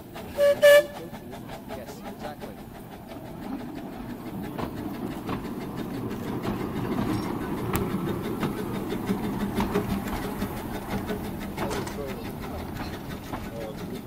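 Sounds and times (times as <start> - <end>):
steam locomotive rumble: 0.0 - 14.0
wheels clicking on rails: 0.0 - 14.0.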